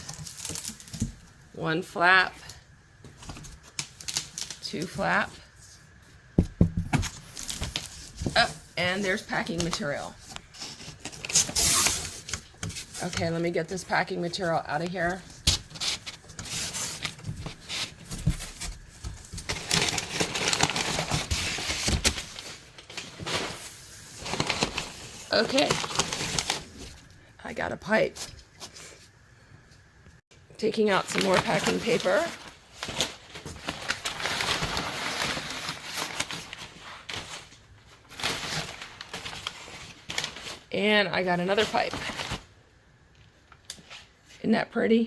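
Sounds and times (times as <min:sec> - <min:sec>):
packing paper crinkling: 0:03.2 - 0:06.3, 0:07.0 - 0:27.1, 0:30.8 - 0:40.8.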